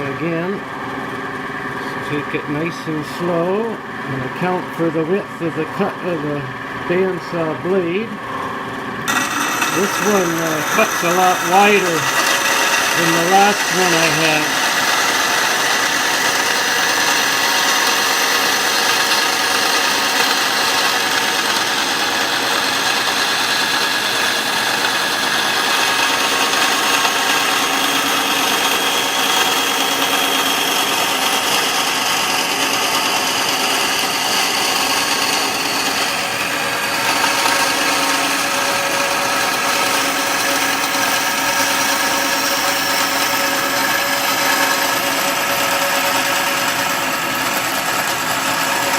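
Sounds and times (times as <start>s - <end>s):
bandsaw cutting wood: 9.0s - 48.9s.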